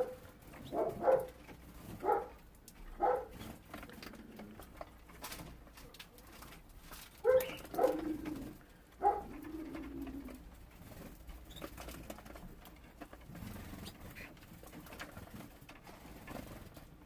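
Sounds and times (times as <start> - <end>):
faint ticks and rustling: 0.0 - 17.0
bird cooing: 7.3 - 10.5.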